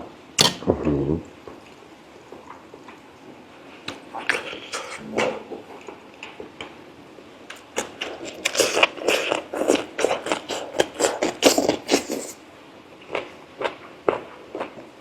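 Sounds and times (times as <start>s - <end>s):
wet chewing and lip-smacking: 7.6s - 12.4s.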